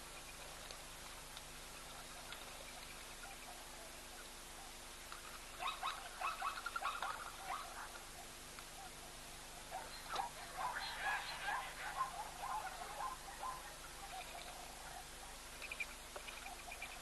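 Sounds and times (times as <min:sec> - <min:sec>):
steady outdoor hiss: 0:00.0 - 0:17.0
birds chattering: 0:09.7 - 0:17.0.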